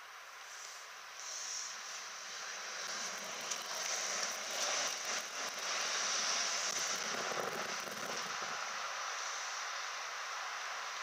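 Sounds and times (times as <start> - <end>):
train wheels on rails: 1.2 - 9.8.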